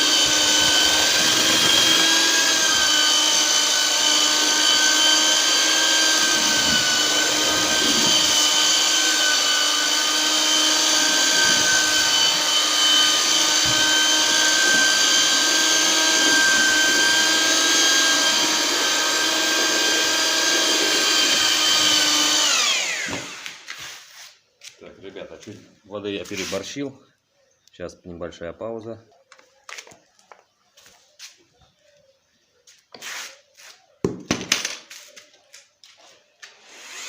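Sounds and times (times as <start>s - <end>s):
electric drill mixing mortar: 0.0s - 24.3s, 35.6s - 37.0s.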